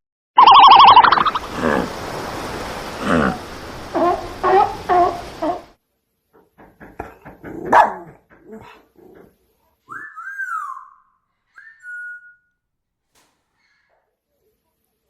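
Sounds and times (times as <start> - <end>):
dog barking and yipping: 3.8 - 5.7, 7.5 - 8.8.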